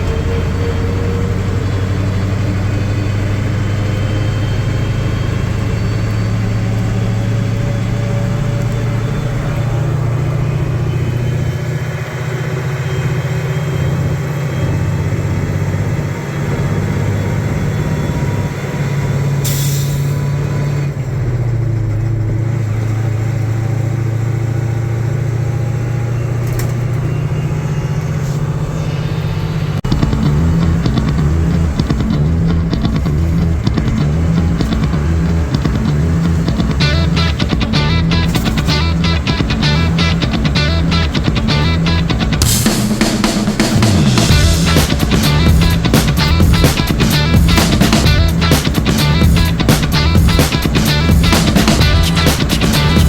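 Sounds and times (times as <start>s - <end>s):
diesel truck engine running: 0.0s - 53.0s
air hiss burst: 42.4s - 46.2s.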